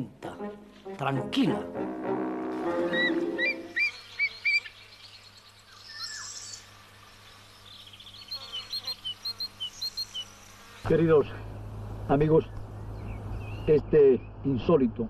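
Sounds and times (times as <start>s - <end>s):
small birds chirping: 2.9s - 14.9s.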